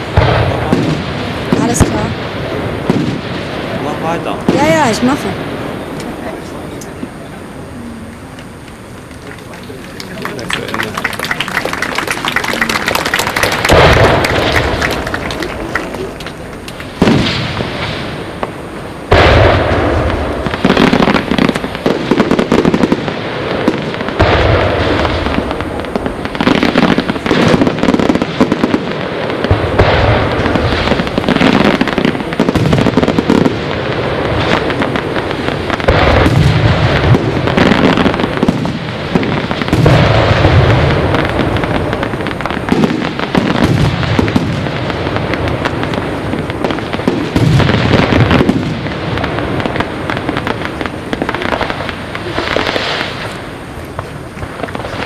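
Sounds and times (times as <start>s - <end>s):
firework bang: 0.0s - 55.0s
fireworks bursts and crackling: 0.0s - 55.0s.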